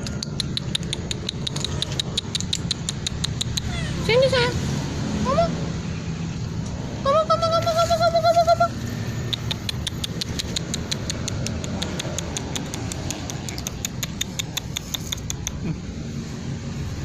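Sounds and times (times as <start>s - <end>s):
dry cat food clicking: 0.0s - 3.7s, 9.2s - 15.7s.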